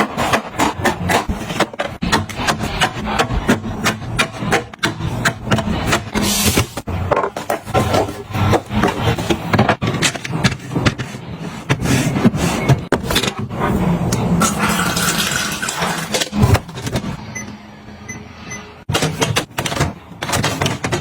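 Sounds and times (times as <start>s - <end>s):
rubbing and scraping: 0.0s - 14.4s.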